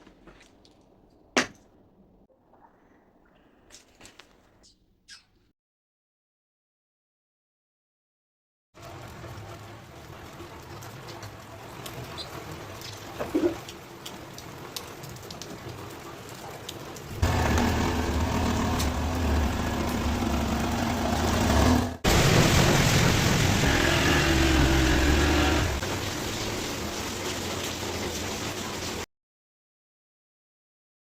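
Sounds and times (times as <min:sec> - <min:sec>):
motorcycle engine running: 0:17.2 - 0:22.1.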